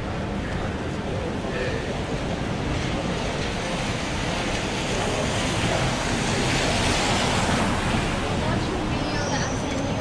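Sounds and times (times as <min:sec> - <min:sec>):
rain hissing on street: 0:02.6 - 0:10.0.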